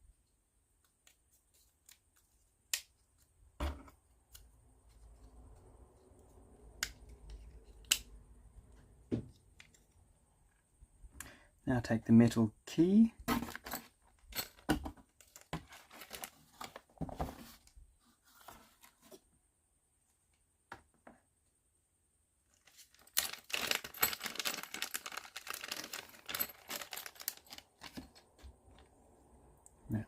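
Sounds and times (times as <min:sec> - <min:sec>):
rapid crackles of rummaging: 0:13.2 - 0:19.2, 0:22.5 - 0:29.0.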